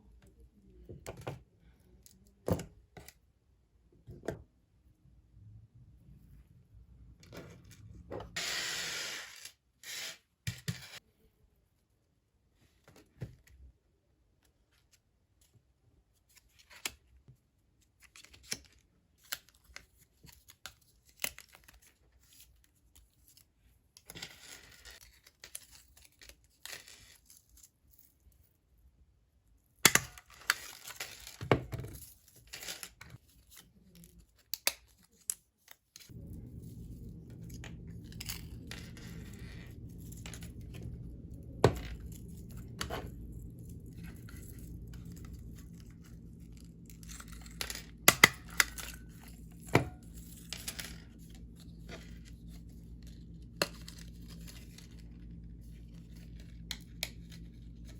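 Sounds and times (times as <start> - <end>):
steady low hum: 36.1 - 57.9.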